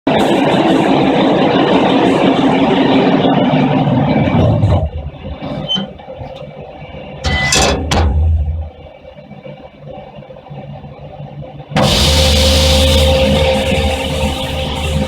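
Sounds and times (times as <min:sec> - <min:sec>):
washing machine rushing noise: 0:00.1 - 0:08.9
low hum: 0:00.1 - 0:15.0.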